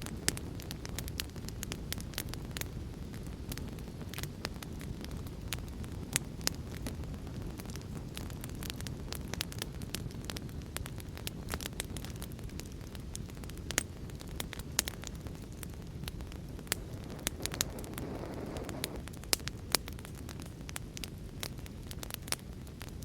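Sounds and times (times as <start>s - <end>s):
wood fire crackling: 0.0s - 23.0s
heavy rain rushing: 16.7s - 19.0s.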